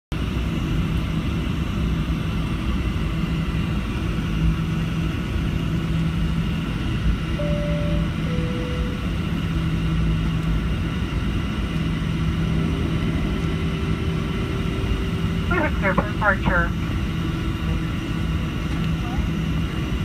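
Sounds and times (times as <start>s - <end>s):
airplane cabin rumble: 0.2s - 20.0s
two-note cabin chime: 7.3s - 9.1s.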